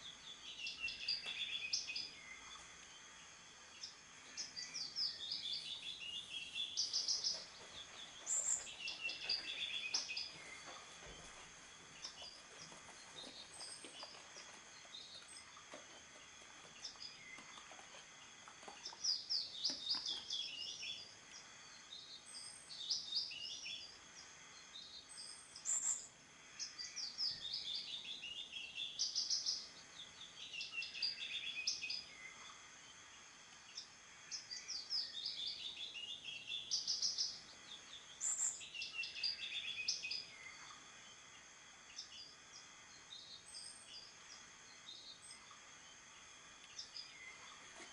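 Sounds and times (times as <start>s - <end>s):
songbird warbling: 0.0s - 11.4s, 13.2s - 21.5s, 25.0s - 32.6s, 33.7s - 41.1s.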